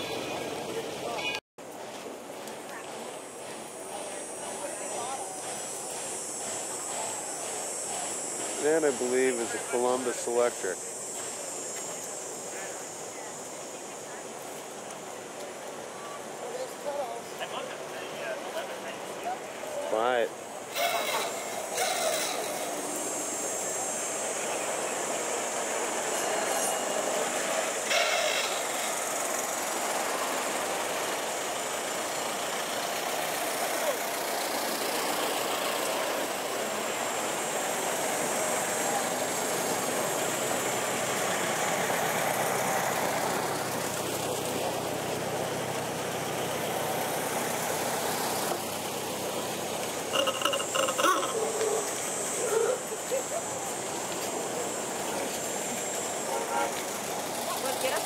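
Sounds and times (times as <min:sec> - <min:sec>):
car engines at low speed: 0:27.2 - 0:58.0.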